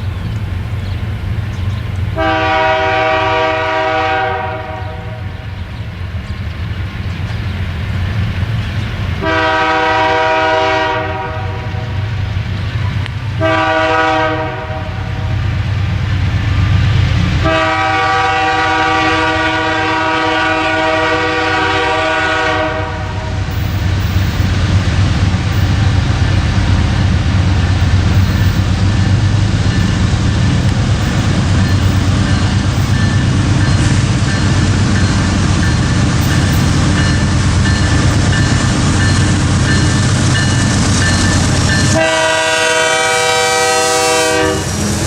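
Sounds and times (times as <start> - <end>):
train rumbling on track: 0.0 - 45.0
locomotive air horn: 2.2 - 5.4, 9.2 - 12.0, 13.4 - 15.3, 17.4 - 23.6, 41.8 - 45.0.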